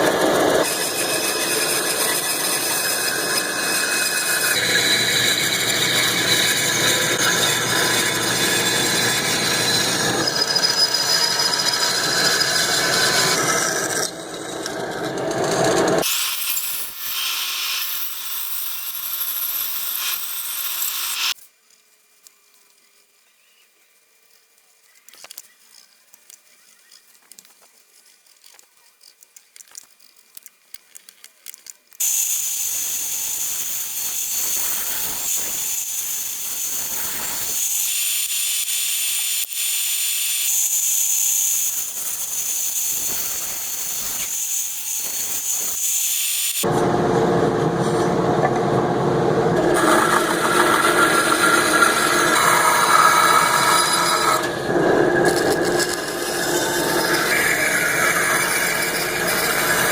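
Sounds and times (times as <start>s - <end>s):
power tool working wood: 0.0s - 16.2s, 49.5s - 59.9s
wood being sanded: 49.8s - 59.9s.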